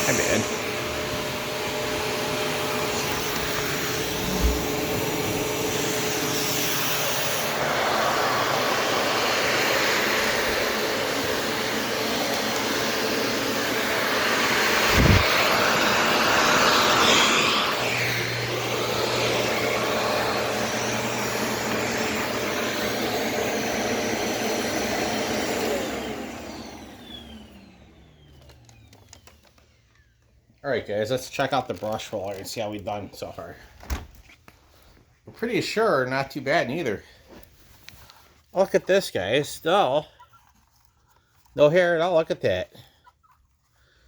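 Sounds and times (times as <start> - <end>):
vacuum cleaner running: 0.0 - 30.2.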